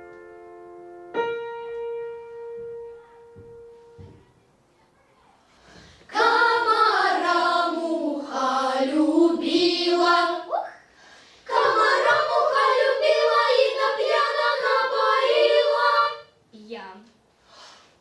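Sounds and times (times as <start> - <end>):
children's choir singing: 6.1 - 10.6, 11.4 - 16.4.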